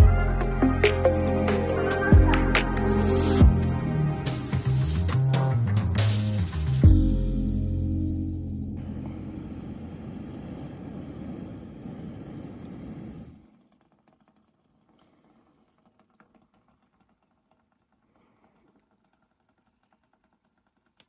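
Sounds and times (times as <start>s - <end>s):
background music: 0.0s - 9.5s
faint small clicks and ticks: 12.0s - 21.0s.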